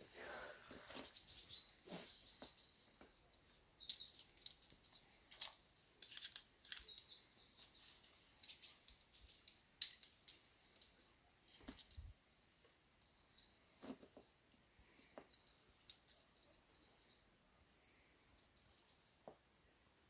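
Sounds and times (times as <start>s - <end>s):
faint bird chirps: 1.0s - 4.4s, 12.2s - 20.0s.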